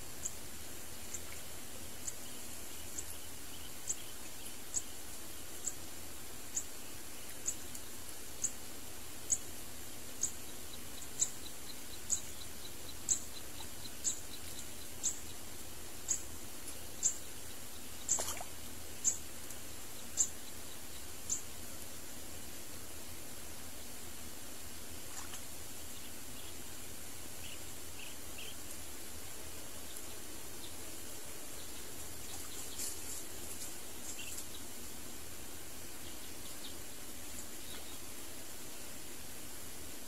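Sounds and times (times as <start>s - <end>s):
steady hiss: 0.0s - 40.0s
bird chirping: 2.0s - 5.0s, 10.2s - 18.4s, 19.0s - 21.5s, 25.9s - 28.7s, 29.8s - 33.2s, 34.0s - 34.8s, 36.0s - 38.1s.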